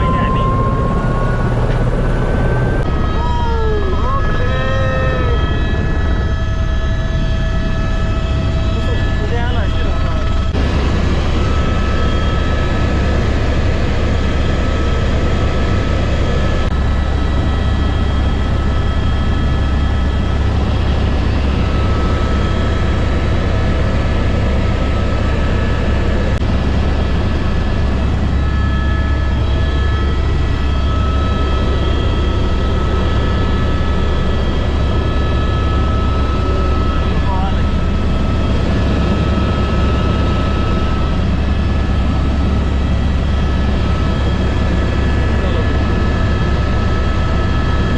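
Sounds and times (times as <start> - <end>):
thin whining tones: 0.0 - 10.6
helicopter rotor and engine drone: 0.0 - 47.9.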